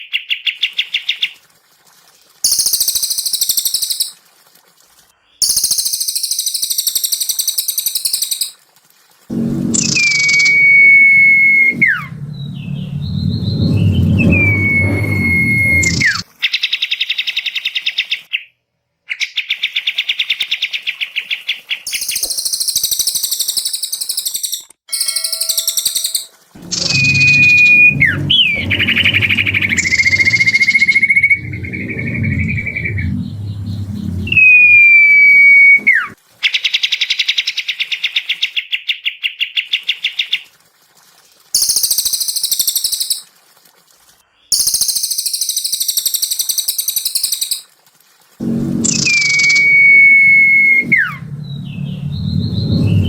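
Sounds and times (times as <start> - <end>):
low rumble: 9.3 - 16.2, 26.6 - 36.2, 48.4 - 53.0
songbird trills and whistles: 44.6 - 47.6.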